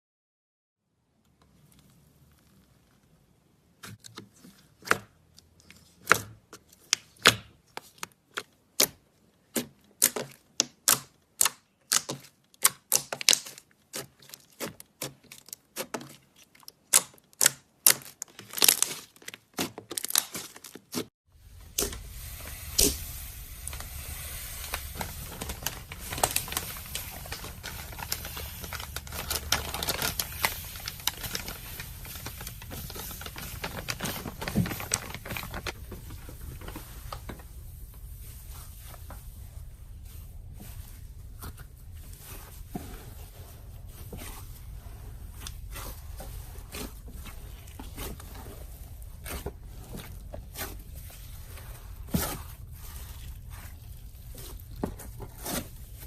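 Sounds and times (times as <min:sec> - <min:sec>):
slime popping and crackling: 0:21.7 - 0:36.0.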